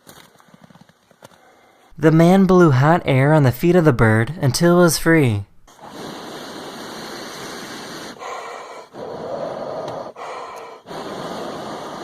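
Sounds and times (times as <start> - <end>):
man blowing breaths: 0.3 - 2.0, 5.7 - 12.0.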